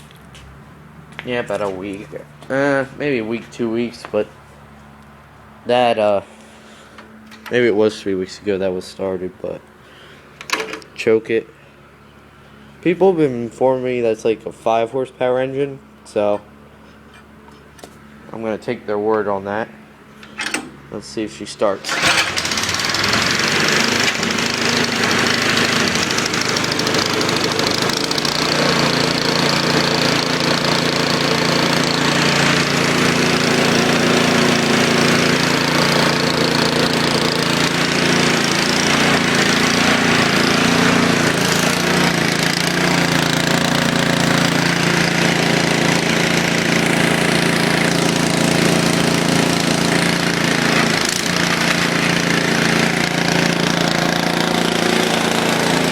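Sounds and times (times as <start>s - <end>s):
snowblower engine running: 1.1s - 10.9s, 21.6s - 55.9s.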